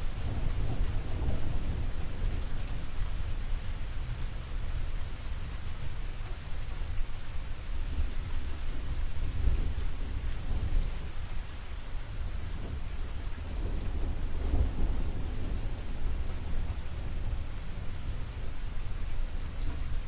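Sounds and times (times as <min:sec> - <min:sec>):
steady rain: 0:00.0 - 0:20.0
thunder rumbling: 0:00.0 - 0:20.0.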